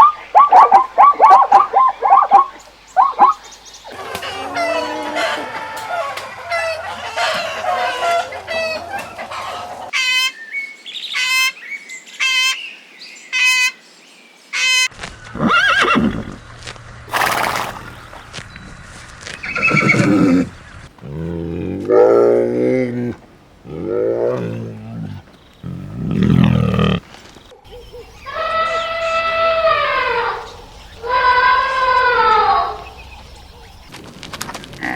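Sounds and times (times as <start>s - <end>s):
farm animal calls: 0.0s - 10.4s, 17.1s - 18.4s, 19.2s - 22.0s.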